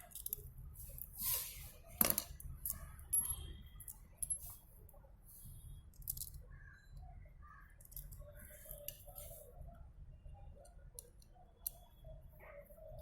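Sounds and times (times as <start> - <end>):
small parts clicking and scraping: 0.0 - 4.7, 5.4 - 6.4, 7.8 - 9.5.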